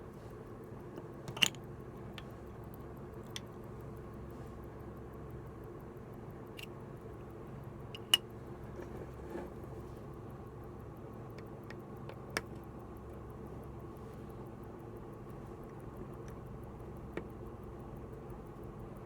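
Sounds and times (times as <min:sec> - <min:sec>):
steady low hum: 0:00.0 - 0:19.0
sharp clicks of small parts: 0:00.9 - 0:03.7, 0:11.3 - 0:13.1.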